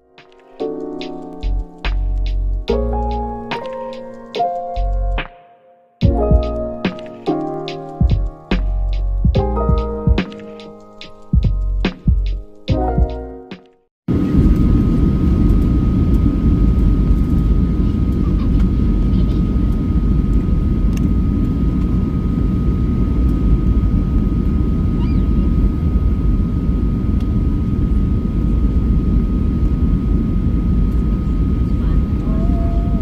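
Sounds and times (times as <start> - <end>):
aircraft cabin engine rumble: 14.1 - 33.0
faint steady whine: 14.1 - 33.0.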